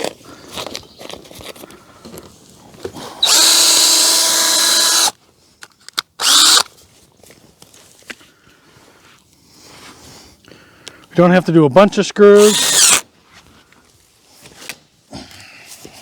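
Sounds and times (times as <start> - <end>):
cordless drill driving screws into wood: 3.2 - 5.2, 6.2 - 6.7, 12.4 - 13.0.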